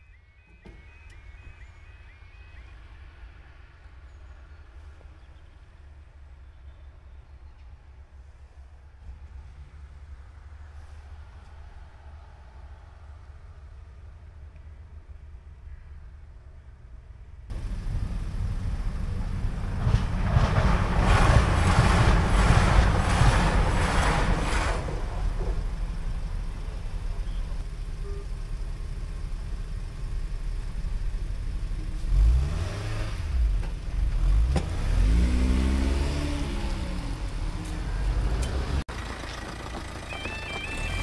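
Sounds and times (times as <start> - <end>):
train rumbling over crossing: 17.5 - 32.5, 33.1 - 41.0
car engines pulling away: 17.5 - 41.0.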